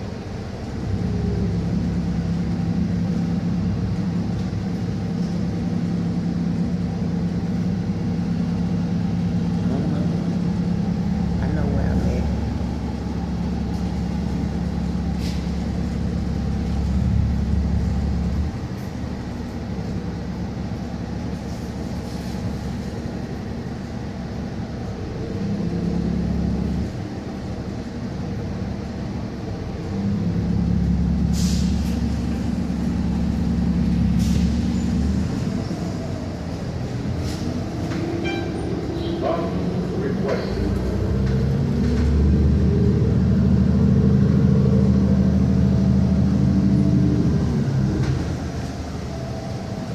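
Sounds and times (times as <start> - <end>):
bus engine drone: 0.0 - 49.9
short air hisses: 31.3 - 31.9.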